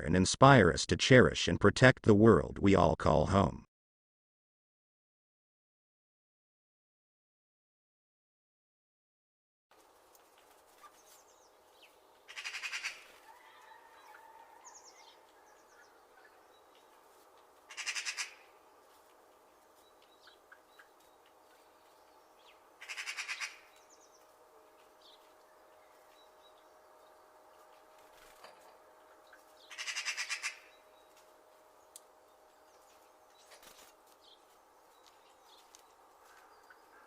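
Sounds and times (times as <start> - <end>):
harsh rattling bird calls: 10.8 - 17.0, 17.7 - 18.6, 20.0 - 24.3, 29.2 - 31.1.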